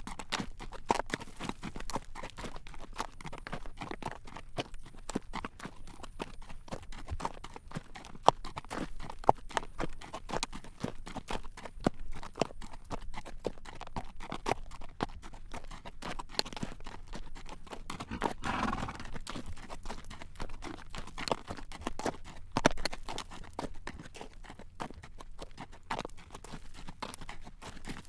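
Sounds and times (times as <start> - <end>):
horse hooves clip-clopping on road: 0.0 - 28.0
short breathy rush: 18.0 - 18.7.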